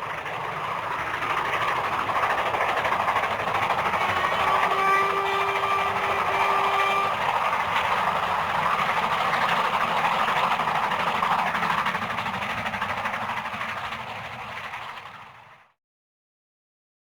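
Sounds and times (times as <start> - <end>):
train running by: 0.0 - 15.8
steam locomotive whistle: 4.3 - 7.3.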